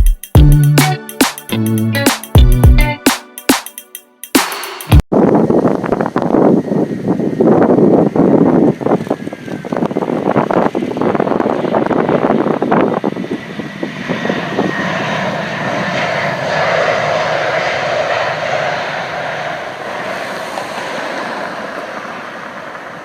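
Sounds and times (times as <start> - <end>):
wind buffeting microphone: 5.1 - 23.0
jet airliner engine: 5.3 - 23.0.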